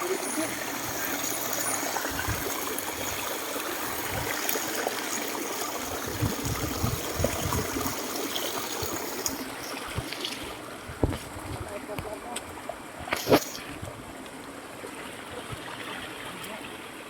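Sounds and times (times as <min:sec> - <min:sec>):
waterfall rushing water: 0:00.0 - 0:09.8.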